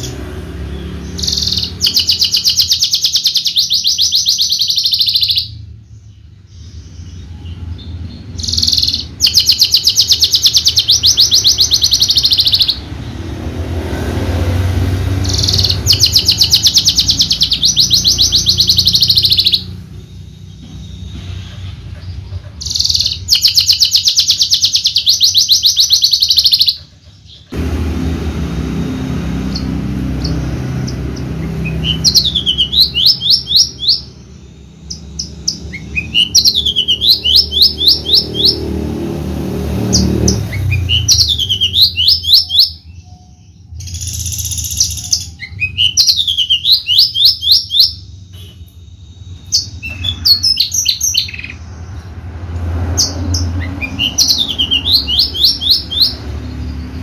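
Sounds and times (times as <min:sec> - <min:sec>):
lark singing trills: 0:00.7 - 0:05.6, 0:06.6 - 0:12.9, 0:15.2 - 0:27.5, 0:29.5 - 0:38.6, 0:39.9 - 0:51.6, 0:53.0 - 0:57.0.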